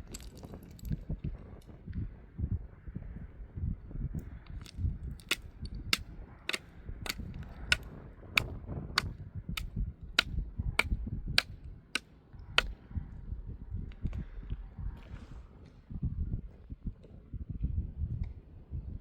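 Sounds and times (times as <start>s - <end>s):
low rumble: 12.4s - 19.0s.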